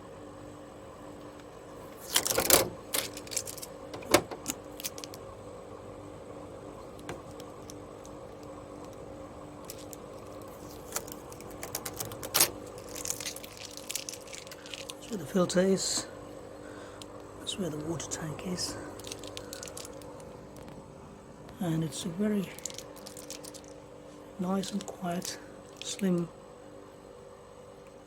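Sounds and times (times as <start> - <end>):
dehumidifier running hum: 0.0 - 28.0
plastic parts clicking: 2.1 - 5.2, 9.7 - 15.0, 19.0 - 20.7.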